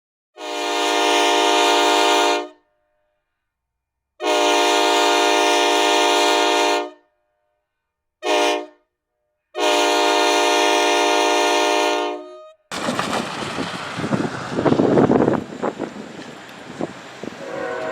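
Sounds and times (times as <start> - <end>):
locomotive air horn blasts: 0.4 - 2.7, 4.2 - 7.2, 8.2 - 8.9, 9.5 - 12.7, 17.3 - 17.9.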